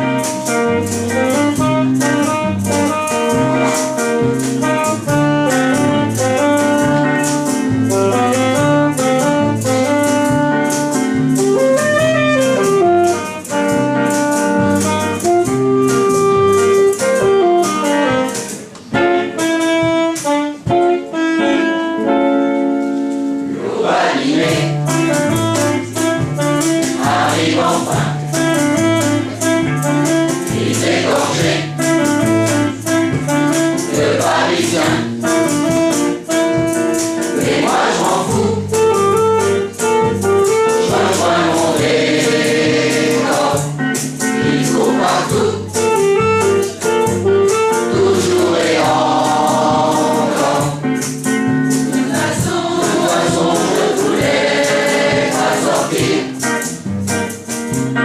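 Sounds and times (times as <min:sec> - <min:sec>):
instrumental music with beat: 0:00.0 - 0:58.0
choir singing: 0:23.5 - 0:25.2, 0:26.8 - 0:28.5, 0:30.4 - 0:31.8, 0:33.8 - 0:35.3, 0:37.2 - 0:38.8, 0:40.7 - 0:45.8, 0:47.8 - 0:50.9, 0:51.8 - 0:56.4.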